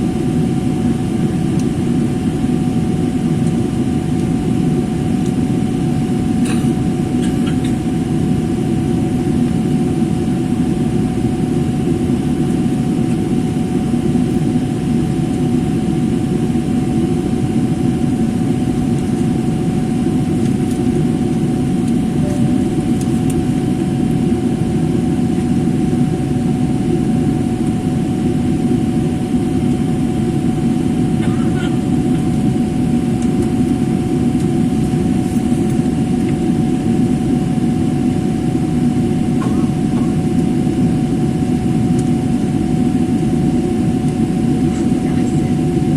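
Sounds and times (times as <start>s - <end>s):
airplane engine and airflow roar: 0.0s - 45.9s
faint steady whine: 18.6s - 25.6s.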